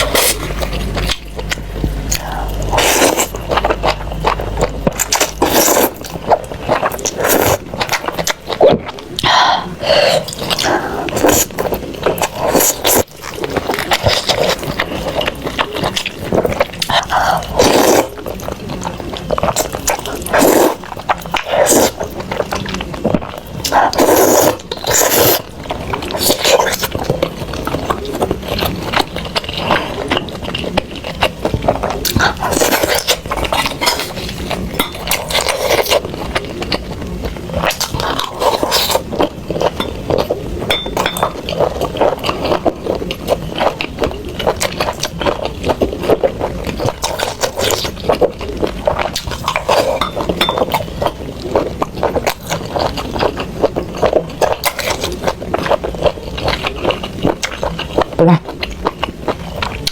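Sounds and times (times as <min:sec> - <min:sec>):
chewing and mouth sounds: 0:00.0 - 0:59.9
utensils scraping and clinking dish: 0:34.7 - 0:35.6, 0:39.6 - 0:41.6, 0:49.5 - 0:51.0.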